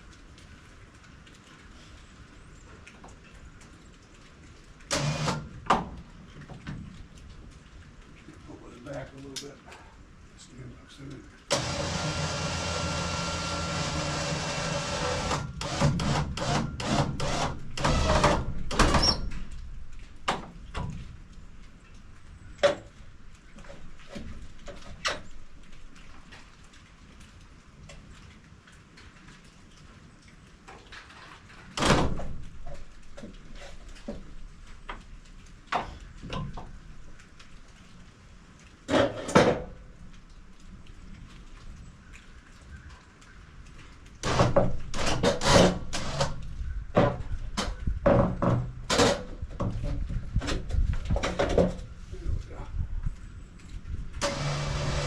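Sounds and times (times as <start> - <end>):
wood and metal knocking: 44.2 - 51.8.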